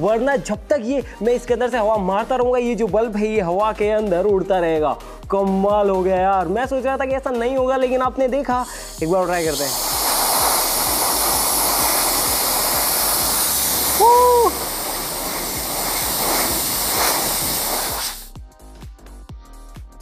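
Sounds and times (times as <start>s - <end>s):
compressed air hissing: 8.4s - 18.4s.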